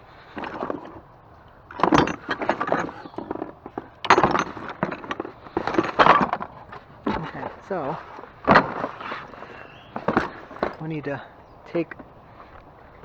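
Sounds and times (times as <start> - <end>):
hard objects clattering and clinking: 0.2 - 12.7.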